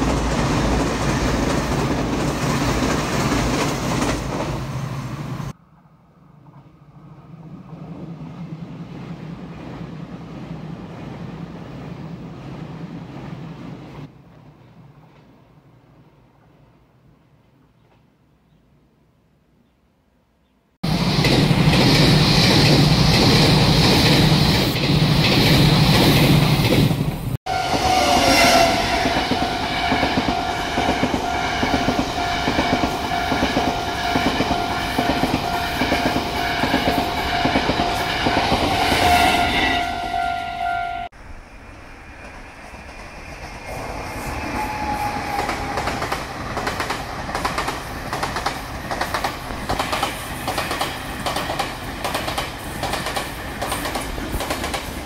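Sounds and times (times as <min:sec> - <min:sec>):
train wheels clicking on rail joints: 0:00.0 - 0:04.8, 0:20.9 - 0:27.3, 0:42.2 - 0:55.0
train rushing past: 0:00.0 - 0:15.4, 0:20.8 - 0:55.0.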